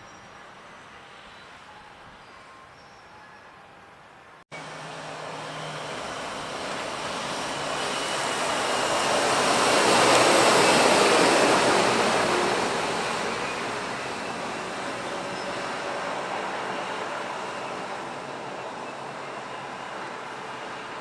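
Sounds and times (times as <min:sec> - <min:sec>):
lorry driving past: 0:04.5 - 0:17.7.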